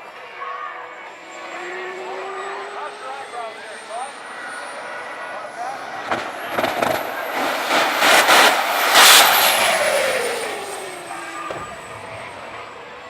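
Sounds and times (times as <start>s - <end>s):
high turbine whine: 1.0s - 13.0s
jet engine rushing blast: 5.0s - 13.0s.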